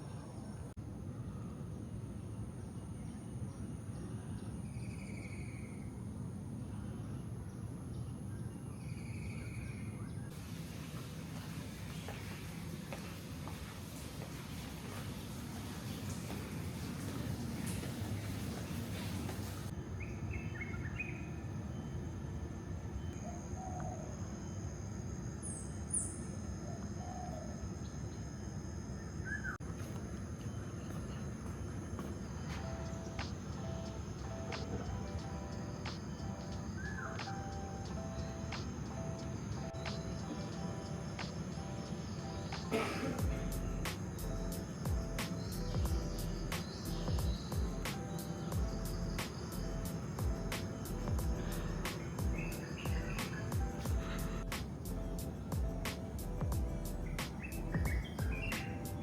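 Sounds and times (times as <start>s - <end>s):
insects droning: 0.0s - 59.0s
outdoor background noise: 0.0s - 59.0s
birds calling: 29.1s - 59.0s.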